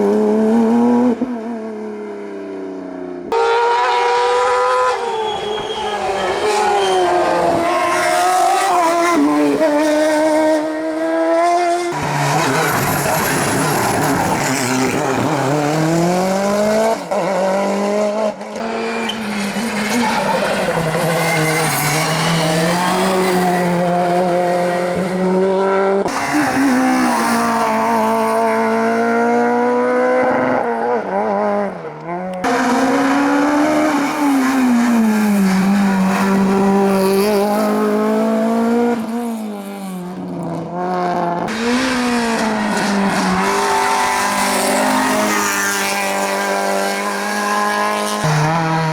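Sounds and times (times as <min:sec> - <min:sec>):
racing car engines revving: 0:00.0 - 0:48.9
tyre squeal: 0:04.8 - 0:08.9, 0:18.6 - 0:24.8.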